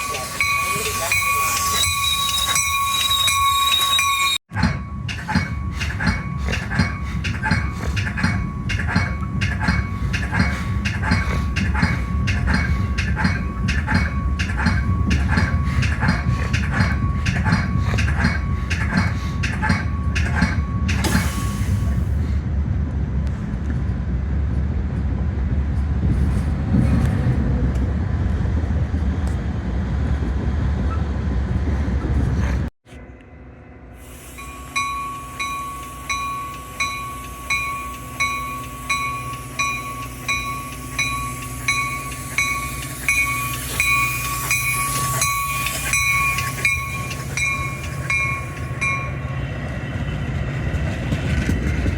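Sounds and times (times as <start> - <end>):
railroad crossing bell ringing: 0.0 - 22.2, 33.5 - 51.8
train rumbling past: 0.0 - 51.9.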